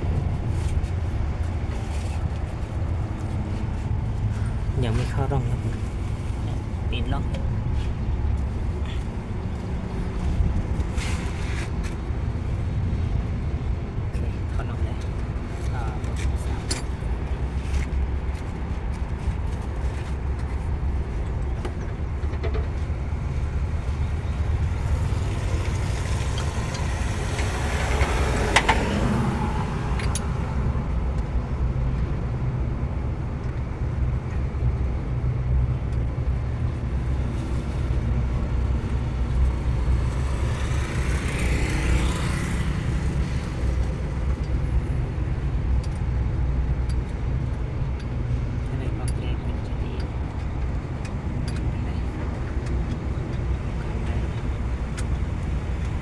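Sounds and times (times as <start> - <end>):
car engine idling: 11.7 - 56.0.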